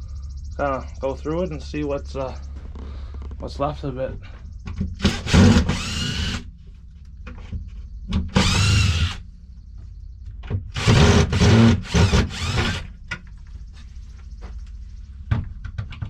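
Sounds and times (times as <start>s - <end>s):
cordless drill motor spinning: 5.0s - 6.4s, 8.3s - 9.2s, 10.8s - 12.9s.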